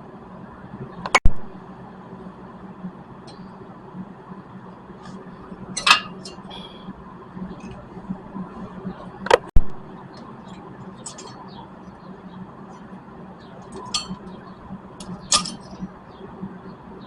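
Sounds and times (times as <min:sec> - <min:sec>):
faint steady hum: 0:00.0 - 0:17.0
light metal clinks of tools: 0:11.0 - 0:11.4.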